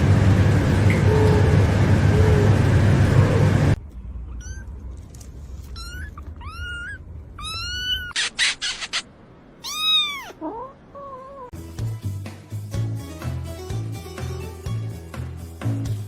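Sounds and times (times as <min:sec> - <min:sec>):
cat meowing: 0:04.3 - 0:04.7, 0:05.6 - 0:08.4, 0:09.6 - 0:11.5.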